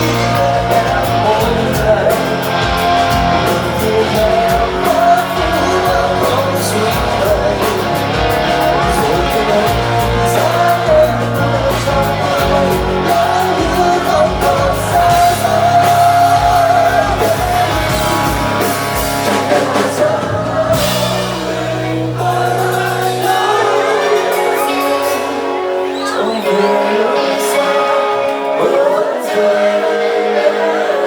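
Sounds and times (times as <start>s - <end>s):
live rock band playing: 0.0s - 31.0s.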